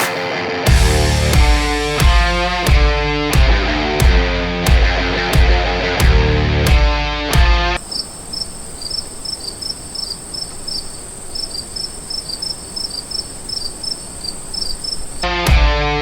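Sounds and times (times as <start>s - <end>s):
insect trill: 7.8s - 15.3s
insects chirping: 7.8s - 15.4s.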